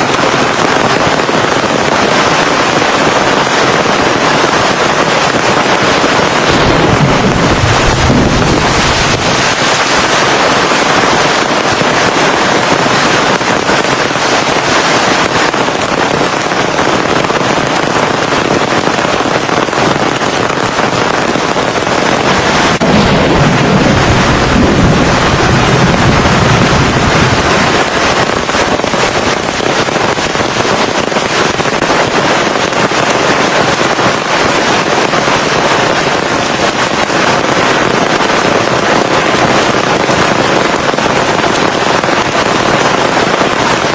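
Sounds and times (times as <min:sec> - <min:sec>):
heavy rain pouring: 0:00.0 - 0:43.9
thunder rumble: 0:04.1 - 0:14.8, 0:21.9 - 0:31.9.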